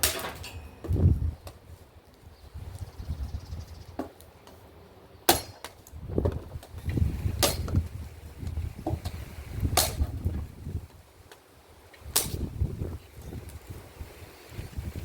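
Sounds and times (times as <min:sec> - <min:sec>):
axe chopping firewood: 0:05.3 - 0:08.0, 0:08.8 - 0:10.4, 0:12.1 - 0:12.5.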